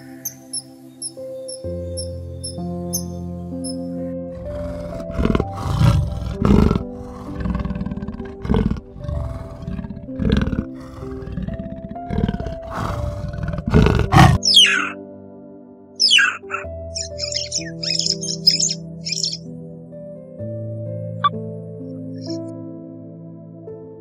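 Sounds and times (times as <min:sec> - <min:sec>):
gentle instrumental music: 0:00.0 - 0:24.0
leopard roaring growls: 0:04.3 - 0:15.0.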